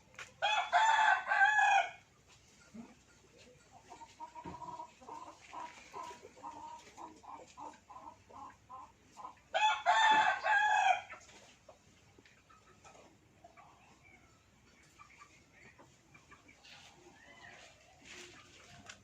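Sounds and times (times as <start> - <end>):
chicken clucking: 0.0 - 19.0
rooster crowing: 0.4 - 2.0, 9.5 - 11.1.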